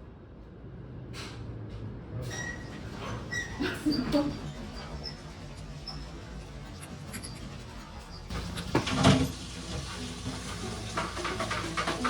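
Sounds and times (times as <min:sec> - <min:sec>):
soft background music: 0:09.7 - 0:12.0.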